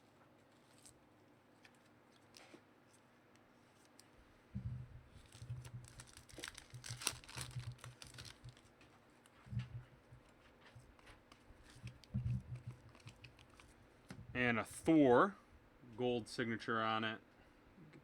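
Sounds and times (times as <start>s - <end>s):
packaging crinkling and rustling: 5.1s - 13.8s.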